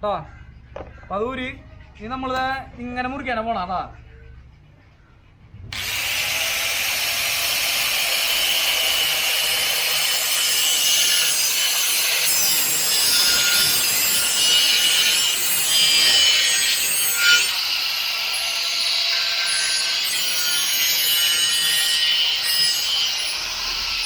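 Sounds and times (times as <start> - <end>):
power tool cutting sheet steel: 5.7 - 24.0
metal scrape: 10.0 - 24.0.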